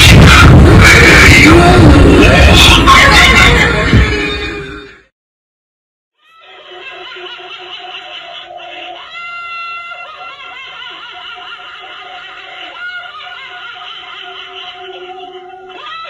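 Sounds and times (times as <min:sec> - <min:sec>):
shrieking voices: 0:00.0 - 0:04.0
creepy laughter: 0:00.0 - 0:04.2, 0:06.4 - 0:16.0.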